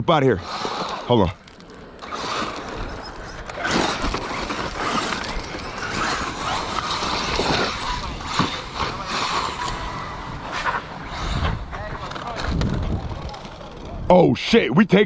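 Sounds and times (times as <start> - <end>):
wheels scrabbling over ground: 0.2 - 14.6
small electric motors whining: 0.3 - 14.1
drivetrains rattling: 0.4 - 9.9.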